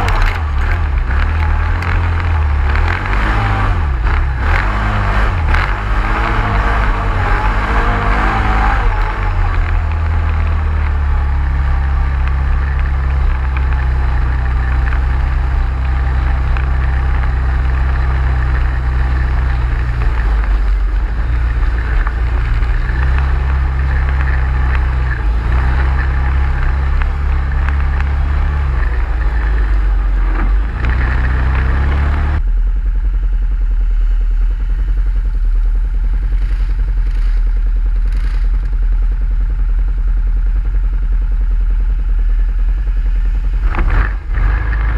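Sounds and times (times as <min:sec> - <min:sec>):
atv engine running: 0:00.0 - 0:44.9
engine clatter: 0:00.0 - 0:44.9.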